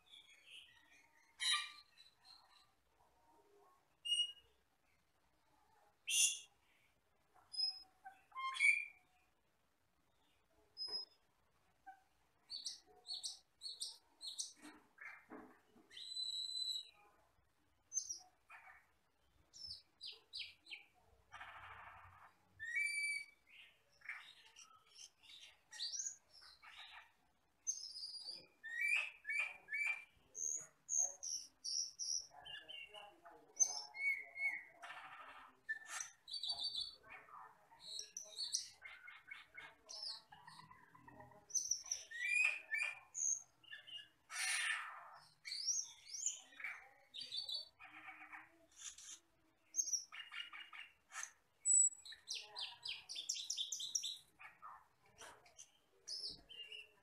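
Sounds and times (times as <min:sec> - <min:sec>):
starling singing chirps and whistles: 0:04.0 - 0:04.4, 0:07.6 - 0:09.0, 0:15.9 - 0:17.0, 0:22.6 - 0:26.6, 0:27.7 - 0:32.9, 0:33.6 - 0:34.8, 0:37.8 - 0:47.8, 0:49.8 - 0:54.3.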